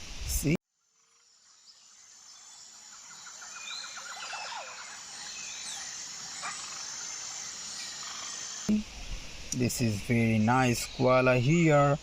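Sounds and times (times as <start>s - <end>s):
high insect drone: 0.4s - 12.0s
bird calls: 1.0s - 9.1s.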